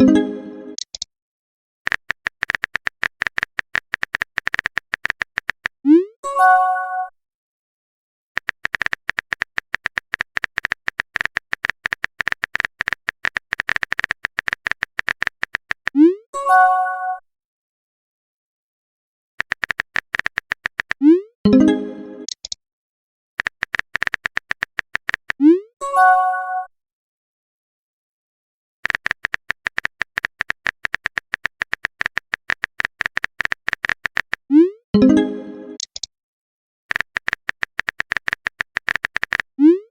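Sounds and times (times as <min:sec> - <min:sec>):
phone keyboard typing clicks: 0:00.7 - 0:01.1, 0:01.9 - 0:05.8, 0:08.4 - 0:16.0, 0:19.4 - 0:21.0, 0:22.2 - 0:22.6, 0:23.4 - 0:25.4, 0:28.8 - 0:34.5, 0:35.8 - 0:36.1, 0:36.9 - 0:39.5
notification chime: 0:35.0 - 0:35.8.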